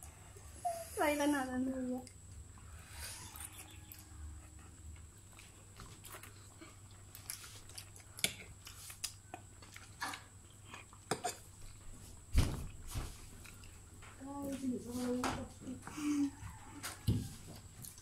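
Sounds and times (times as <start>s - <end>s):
chewing noodles: 2.0s - 11.4s.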